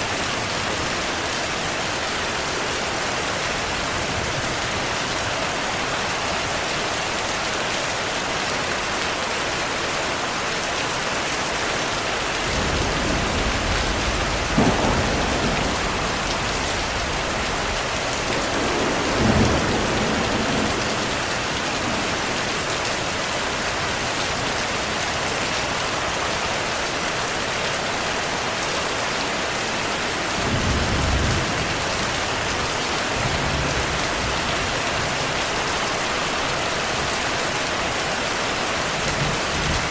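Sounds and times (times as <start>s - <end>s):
heavy rain: 0.0s - 39.9s
thunder rumbling: 12.3s - 23.1s.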